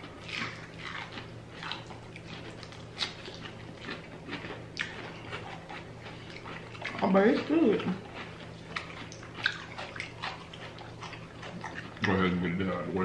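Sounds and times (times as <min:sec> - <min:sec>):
chewing crunchy fried food: 0:00.0 - 0:12.6.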